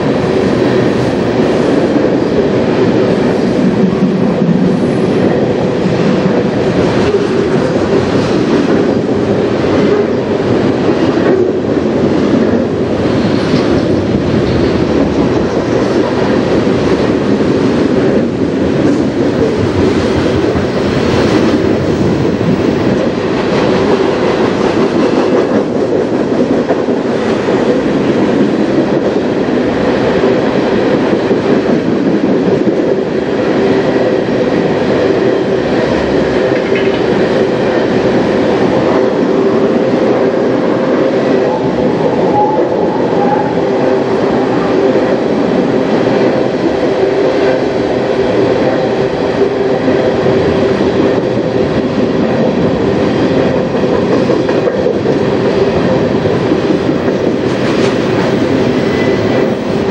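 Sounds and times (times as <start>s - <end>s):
freight train wheels rumbling: 0.0s - 59.9s
wheels clacking over rail joints: 36.4s - 37.5s.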